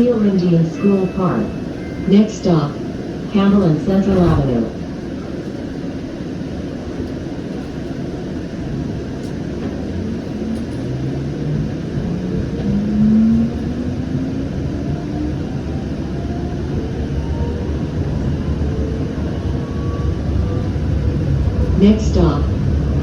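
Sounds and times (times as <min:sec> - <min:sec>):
train rumble: 0:00.0 - 0:23.0
traction motor whine rising: 0:09.8 - 0:21.6.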